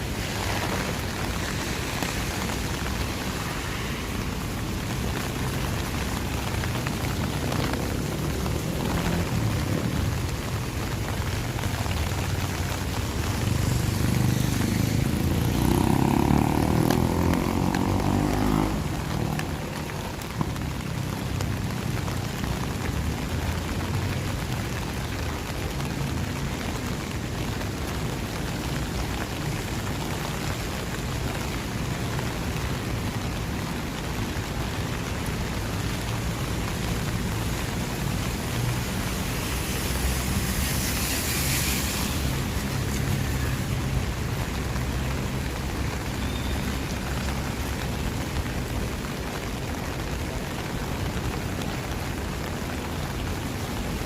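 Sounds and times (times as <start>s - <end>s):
rain falling on street: 0.0s - 54.0s
vehicle passing on wet road: 0.0s - 54.0s.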